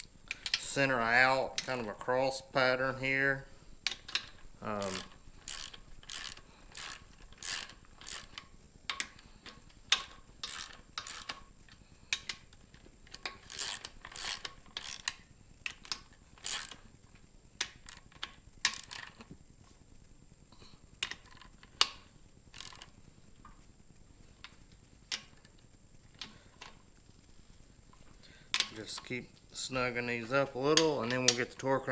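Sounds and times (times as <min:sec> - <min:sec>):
hand ratchet clicking: 0:00.0 - 0:01.9, 0:03.8 - 0:16.8, 0:17.6 - 0:19.2, 0:21.0 - 0:22.9.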